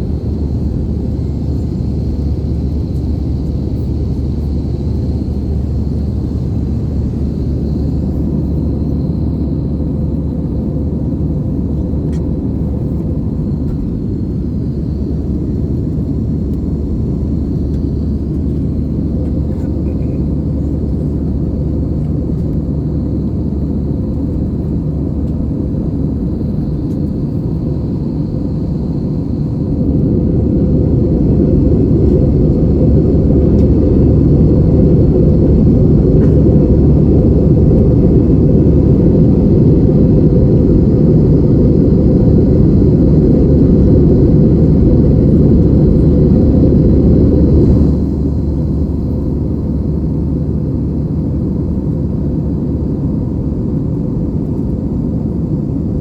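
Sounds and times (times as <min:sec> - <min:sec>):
jet cabin engine rumble: 0:00.0 - 0:56.0.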